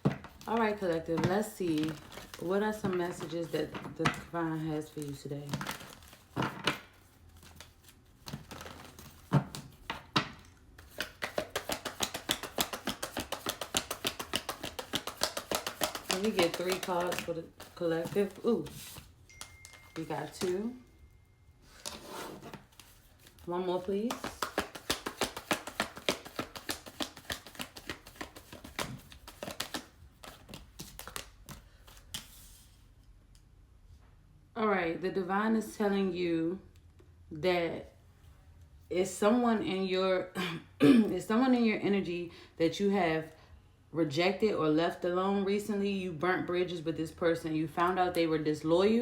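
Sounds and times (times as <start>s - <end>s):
cards shuffling: 0.1s - 20.6s, 21.7s - 32.8s.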